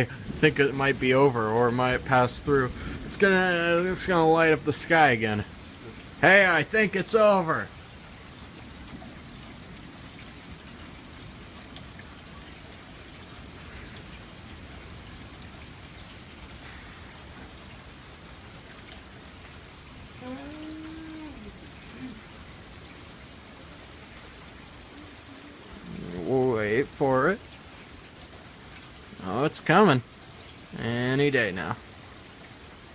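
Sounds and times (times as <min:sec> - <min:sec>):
steady rain hiss: 0:00.0 - 0:32.9
person humming: 0:20.2 - 0:22.2.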